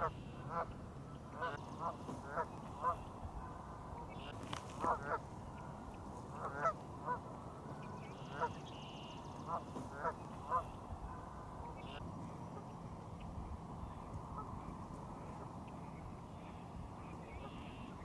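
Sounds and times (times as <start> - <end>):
geese honking: 0.0 - 12.7.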